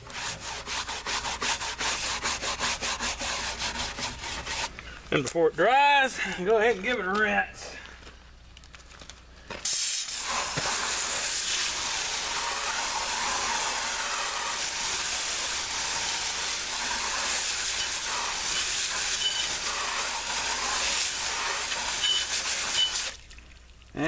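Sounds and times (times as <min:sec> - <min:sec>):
water spraying from hose: 0:09.6 - 0:24.0.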